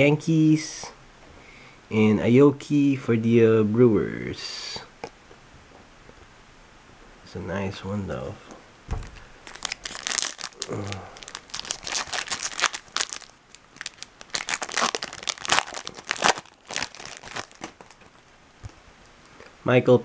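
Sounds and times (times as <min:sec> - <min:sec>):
foil wrappers crinkling and tearing: 0:09.1 - 0:18.4.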